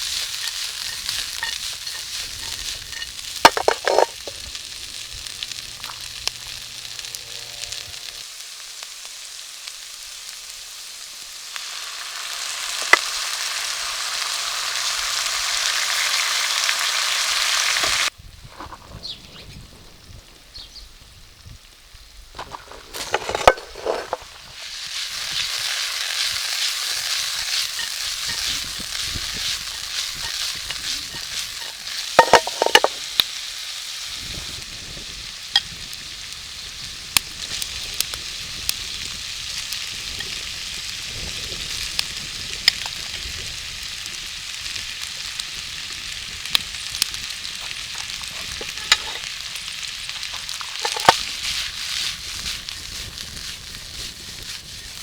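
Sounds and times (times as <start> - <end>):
food sizzling in a pan: 0.0 - 18.2, 21.2 - 55.0
utensil knocking against pan: 0.4 - 4.4, 32.2 - 33.0.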